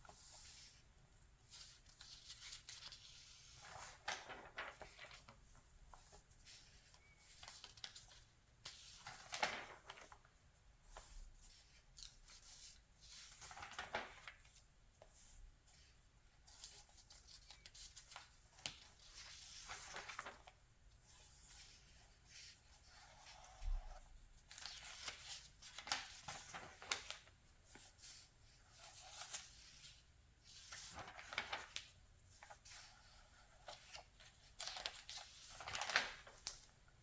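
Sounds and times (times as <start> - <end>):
magazine pages turning: 1.5 - 10.3, 13.2 - 14.6, 16.5 - 20.6, 24.4 - 36.7.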